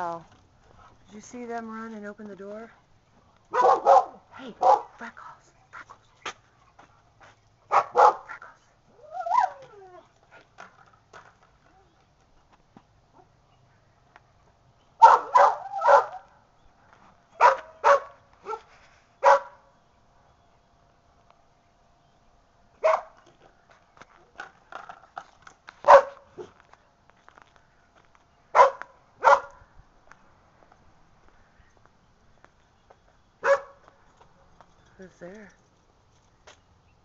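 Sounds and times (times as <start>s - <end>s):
dog barking: 3.5s - 4.9s, 7.7s - 8.4s, 15.0s - 16.3s, 17.4s - 19.6s, 22.8s - 23.2s, 25.9s - 26.5s, 28.5s - 29.6s, 33.4s - 33.8s.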